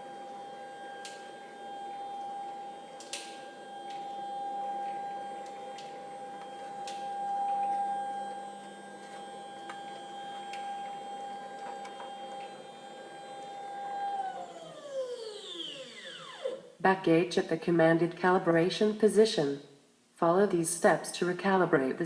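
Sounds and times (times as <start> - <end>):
stepper motor whine: 0.0 - 16.7.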